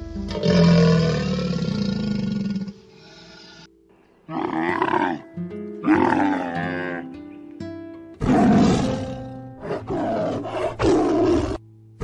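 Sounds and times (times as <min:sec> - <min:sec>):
camel bellowing: 0:04.3 - 0:07.2, 0:08.2 - 0:11.6
plucked-string music: 0:04.8 - 0:09.9.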